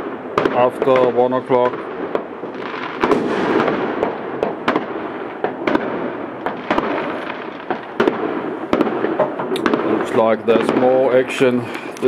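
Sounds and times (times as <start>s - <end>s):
distant fireworks crackling: 0.0s - 12.0s
nearby firecracker reports: 0.4s - 1.8s, 9.6s - 12.0s.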